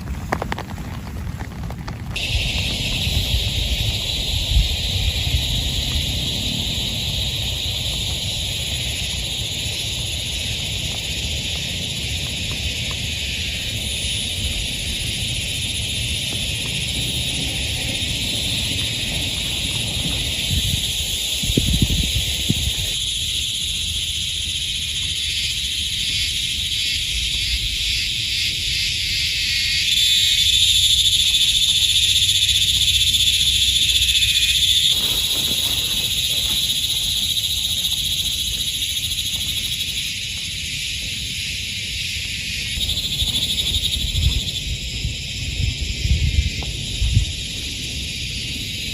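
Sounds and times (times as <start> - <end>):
frogs chorus calling: 2.2 - 48.9.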